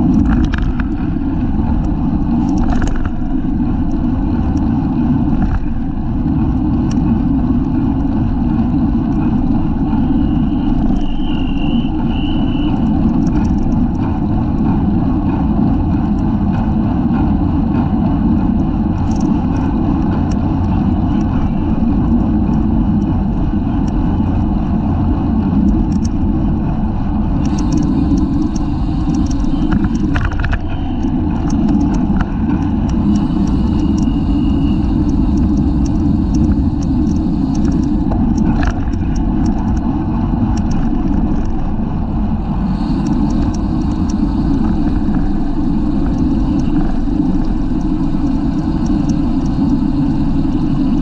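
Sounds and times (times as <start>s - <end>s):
road rumble: 0.0s - 51.0s
wind buffeting microphone: 0.0s - 51.0s
faint ticks: 10.0s - 14.1s, 18.6s - 23.1s, 27.4s - 39.9s, 40.5s - 41.5s, 42.5s - 51.0s.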